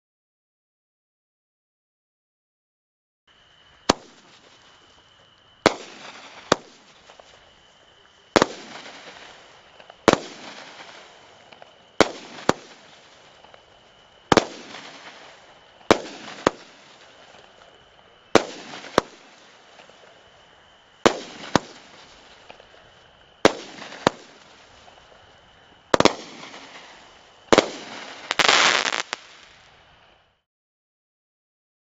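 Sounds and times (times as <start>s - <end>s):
firework crackling burst: 3.8s - 5.0s, 5.6s - 7.5s, 8.3s - 17.7s, 18.3s - 20.0s, 21.0s - 22.5s, 23.4s - 30.2s
firework launch reports: 5.6s - 13.6s, 14.3s - 17.7s, 18.3s - 20.1s, 23.4s - 25.0s, 25.9s - 29.8s
firework shells bursting: 26.0s - 29.6s.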